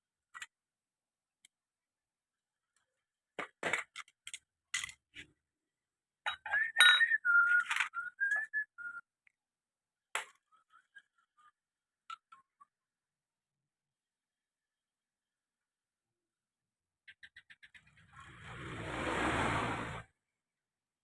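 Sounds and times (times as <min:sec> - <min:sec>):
person whistling: 0:06.5 - 0:09.1.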